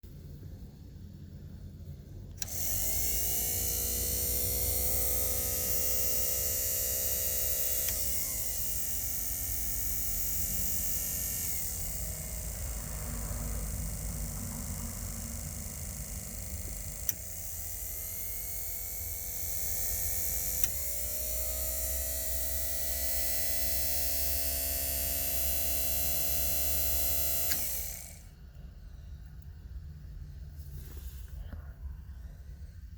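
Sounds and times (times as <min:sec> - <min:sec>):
heater blower motor whirring: 0:02.3 - 0:28.5.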